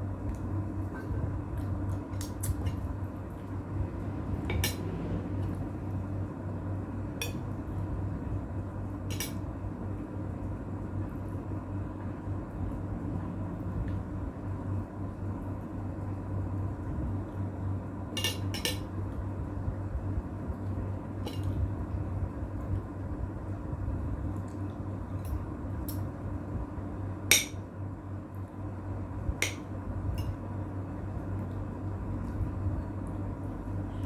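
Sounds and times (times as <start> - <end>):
steady low hum: 0.0 - 34.0
cutlery clinking against a plate: 9.1 - 9.4, 18.2 - 18.9.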